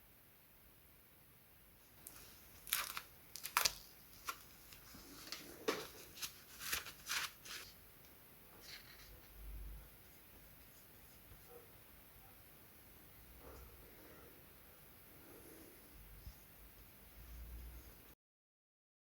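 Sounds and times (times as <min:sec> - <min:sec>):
crinkling tearing rustles: 0:02.0 - 0:07.8.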